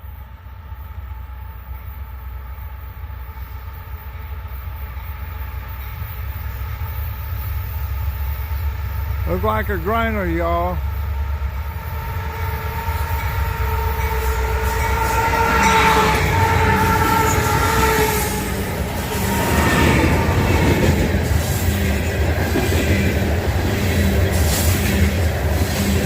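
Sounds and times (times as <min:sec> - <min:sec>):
diesel locomotive engine rumble: 0:00.0 - 0:26.0
steady horn-like tone: 0:11.6 - 0:20.9.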